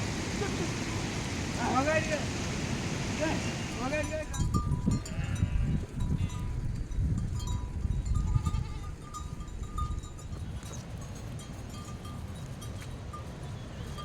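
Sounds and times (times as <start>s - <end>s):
small animal bells tinkling: 4.0s - 14.0s
sheep bleating: 5.1s - 5.8s.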